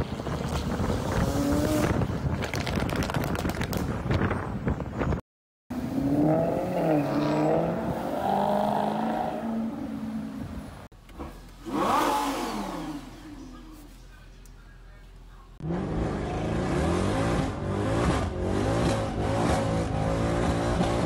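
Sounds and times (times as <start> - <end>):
sports car engine revving: 11.1 - 13.9, 15.6 - 21.0.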